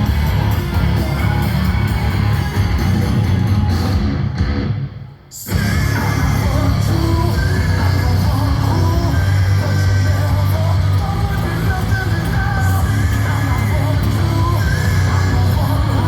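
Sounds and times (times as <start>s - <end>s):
steady bass: 0.0s - 4.9s, 5.5s - 16.0s
rock music with distorted guitar: 0.0s - 16.0s
person singing or shouting: 5.4s - 16.0s.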